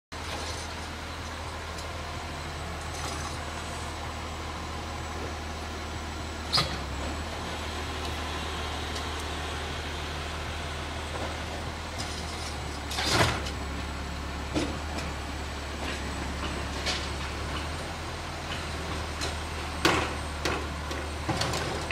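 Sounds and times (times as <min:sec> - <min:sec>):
garbage truck engine humming: 0:00.1 - 0:21.9
sharp knocks and clanks: 0:18.5 - 0:21.9.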